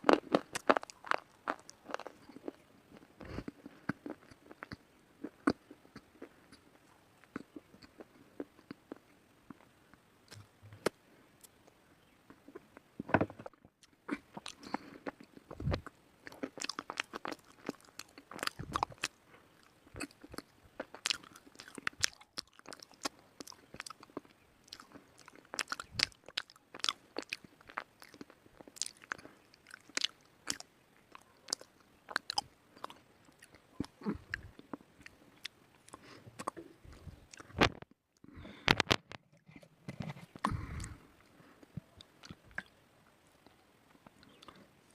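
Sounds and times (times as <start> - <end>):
person chewing crunchy chalk: 0.0 - 9.7, 13.8 - 37.6.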